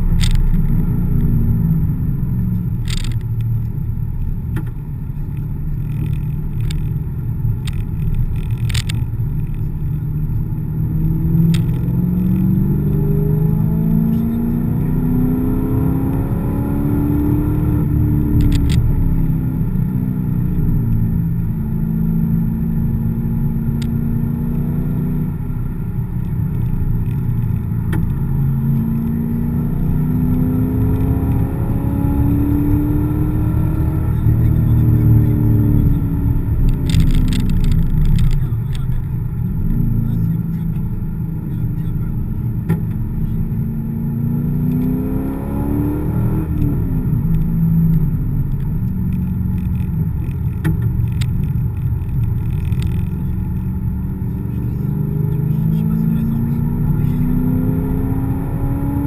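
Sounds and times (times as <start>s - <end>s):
car engine accelerating: 0.0s - 59.0s
road and tyre noise: 0.0s - 59.0s
sharp clicks: 18.4s - 18.9s, 36.6s - 39.1s.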